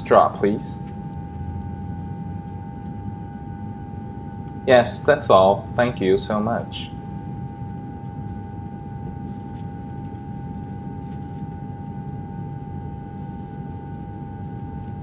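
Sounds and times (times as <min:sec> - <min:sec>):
airliner cabin drone: 0:00.0 - 0:15.0
constant high hum: 0:00.0 - 0:15.0.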